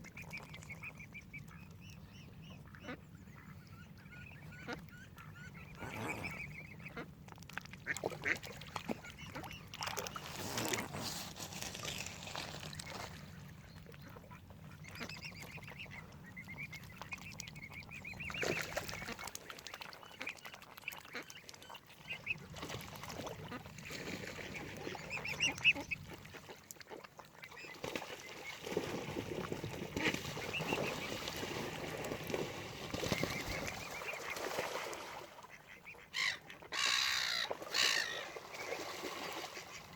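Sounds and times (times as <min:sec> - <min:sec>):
waterfowl calling: 0:35.5 - 0:39.9.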